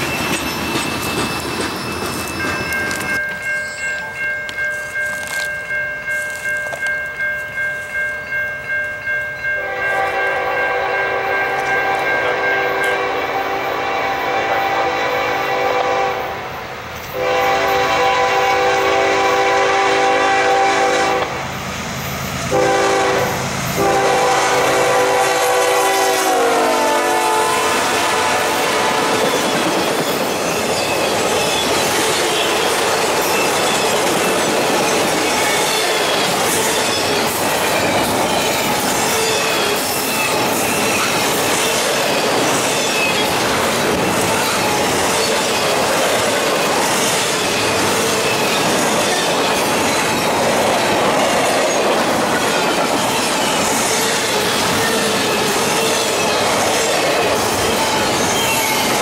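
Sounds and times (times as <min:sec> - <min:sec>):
wheels clacking over rail joints: 0:00.0 - 0:05.6
train wheels rumbling: 0:00.0 - 0:08.2, 0:09.6 - 0:59.0
locomotive air horn blasts: 0:09.6 - 0:16.6, 0:17.2 - 0:21.4, 0:22.5 - 0:29.4.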